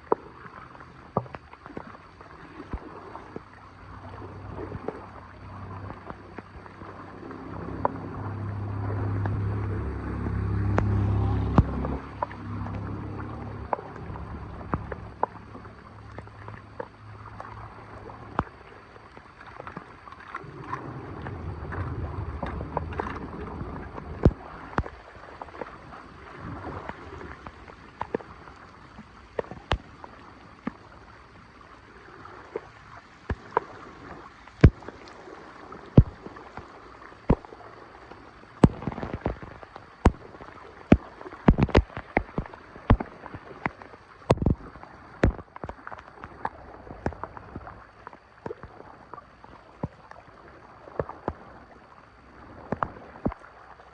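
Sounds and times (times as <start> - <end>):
water gurgling into drain: 0.0 - 53.9
low rumble: 2.8 - 28.8
sharp knocks and clicks: 10.7 - 12.9, 36.0 - 36.2, 38.6 - 40.3, 40.9 - 44.6, 45.2 - 45.8.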